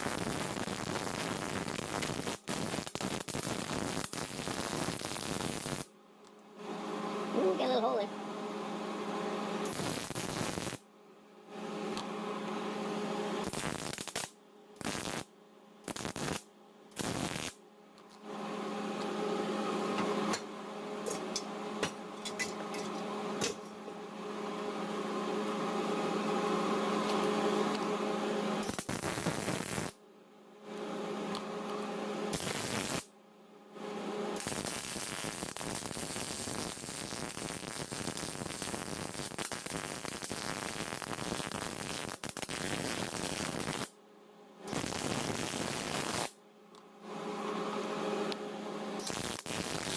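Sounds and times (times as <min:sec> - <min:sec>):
welder arc crackling hiss: 0:00.0 - 0:05.9, 0:09.6 - 0:10.8, 0:13.4 - 0:17.6, 0:28.6 - 0:30.0, 0:32.3 - 0:33.1, 0:34.4 - 0:43.9, 0:44.7 - 0:46.4, 0:49.0 - 0:49.9
welder steady hum: 0:00.0 - 0:10.8, 0:11.4 - 0:30.0, 0:30.7 - 0:33.1, 0:33.8 - 0:44.0, 0:44.6 - 0:49.9.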